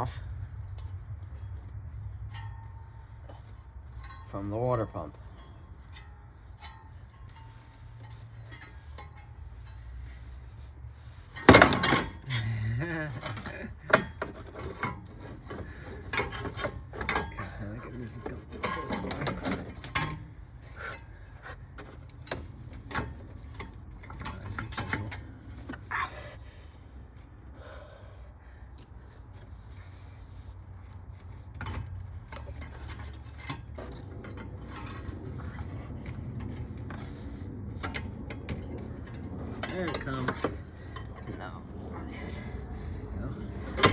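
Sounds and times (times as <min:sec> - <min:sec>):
metal tools knocking and scraping: 0:02.2 - 0:09.9, 0:11.3 - 0:25.9, 0:31.4 - 0:41.6, 0:43.2 - 0:43.9.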